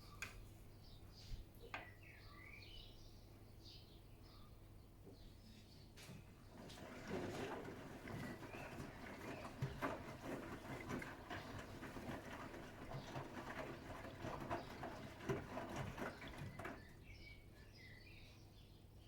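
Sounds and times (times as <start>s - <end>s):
laundry tumbling in drum: 6.4s - 17.2s
washing machine motor hum: 6.5s - 17.1s.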